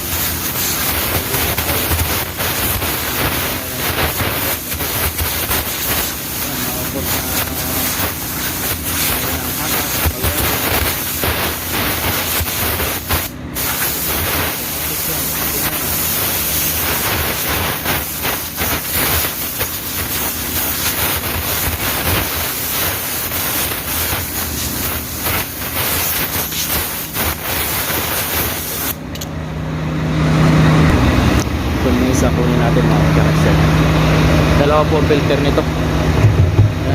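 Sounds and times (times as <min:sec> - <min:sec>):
compressed air hissing: 0:00.0 - 0:29.0
low engine hum: 0:29.0 - 0:36.9.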